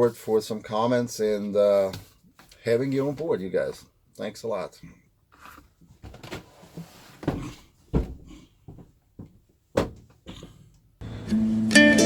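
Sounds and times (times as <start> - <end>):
knocks and bumps: 7.2 - 10.6.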